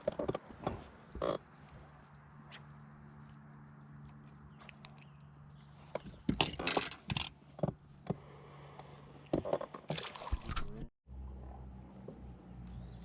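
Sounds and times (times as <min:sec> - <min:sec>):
knocks and clatter on boat: 0:05.8 - 0:08.3.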